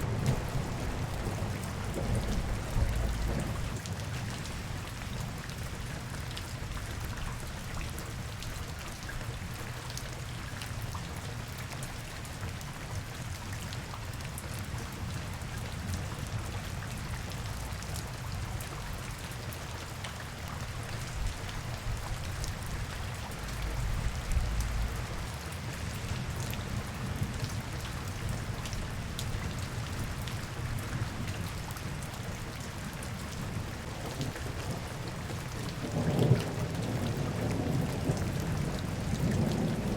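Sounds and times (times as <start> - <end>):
raindrops on hard surfaces: 0.0 - 39.9
low rumble: 1.8 - 3.7, 23.4 - 25.3.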